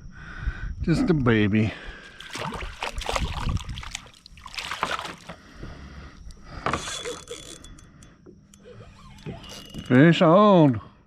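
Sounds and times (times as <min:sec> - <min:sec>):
water splashing: 0:02.1 - 0:05.5.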